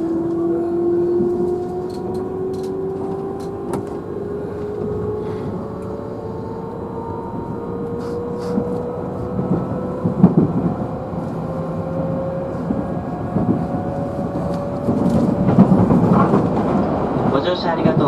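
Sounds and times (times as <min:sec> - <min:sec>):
traction motors whining: 0:00.0 - 0:17.2
train running rumble: 0:00.0 - 0:18.0
rail-joint clacks: 0:01.2 - 0:04.1, 0:13.3 - 0:18.0.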